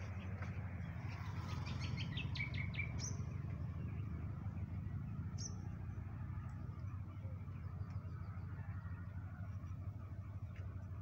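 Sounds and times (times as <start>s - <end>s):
small birds chirping: 0.0s - 8.5s.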